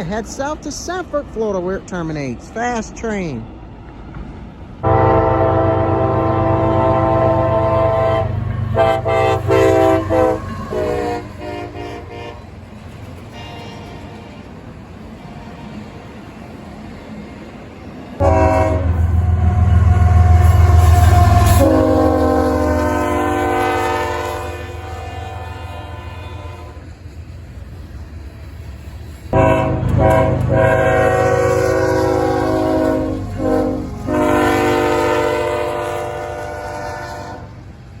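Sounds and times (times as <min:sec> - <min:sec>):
passing train rumble: 0:00.0 - 0:38.0
locomotive horn blasts: 0:04.8 - 0:12.5, 0:13.3 - 0:14.5, 0:18.2 - 0:26.9, 0:29.3 - 0:37.6.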